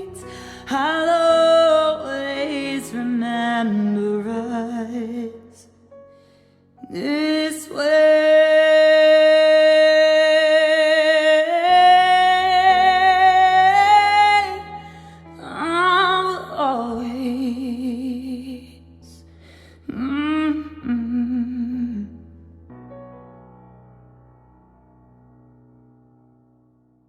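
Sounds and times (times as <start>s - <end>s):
person singing with vibrato: 0.0s - 5.6s, 6.8s - 19.2s.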